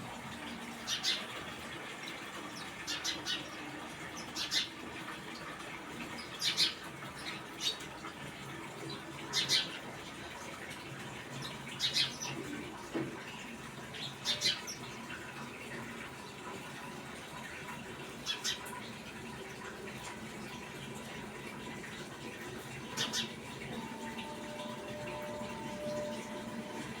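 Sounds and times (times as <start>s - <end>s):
small birds chirping: 0.8s - 1.4s, 2.4s - 4.8s, 6.1s - 7.9s, 11.4s - 12.5s, 13.9s - 14.9s, 23.0s - 23.4s.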